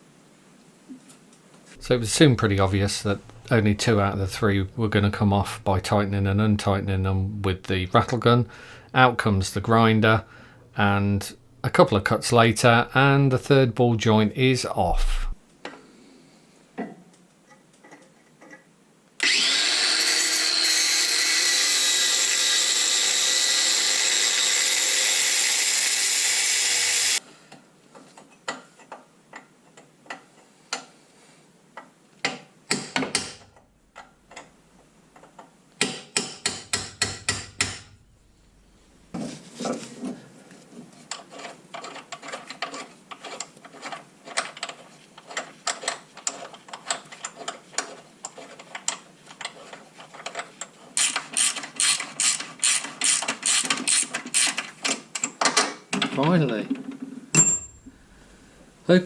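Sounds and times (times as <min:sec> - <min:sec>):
angle grinder cutting metal: 0:19.2 - 0:27.2, 0:51.0 - 0:54.6
sharp knocks: 0:35.8 - 0:38.0.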